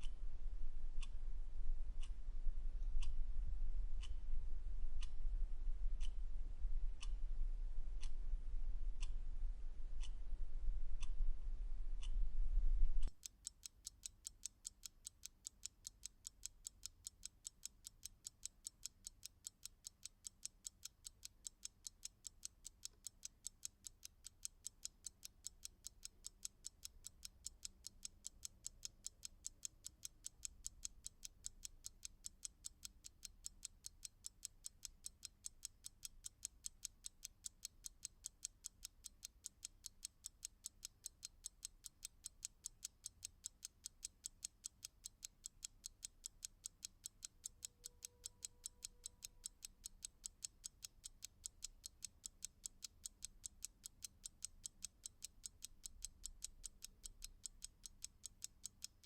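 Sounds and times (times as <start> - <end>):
clock ticking: 13.0 - 59.0.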